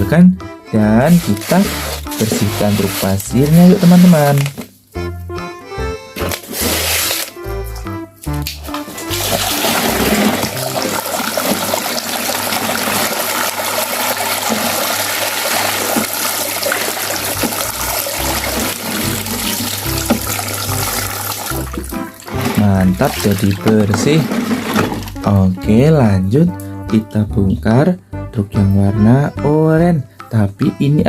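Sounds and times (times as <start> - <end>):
running water gushing: 1.1 - 4.6, 8.8 - 25.2.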